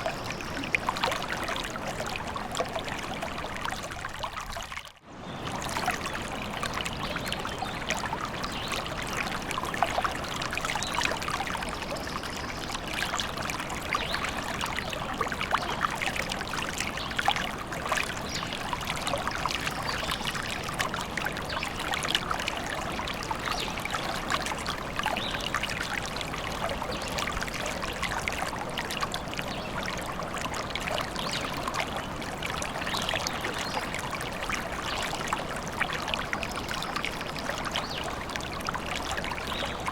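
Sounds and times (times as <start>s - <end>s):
stream babbling and trickling: 0.0s - 39.9s.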